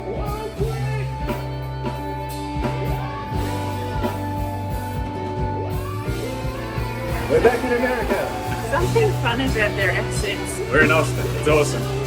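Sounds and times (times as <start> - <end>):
guitar and drums music: 0.0 - 12.0.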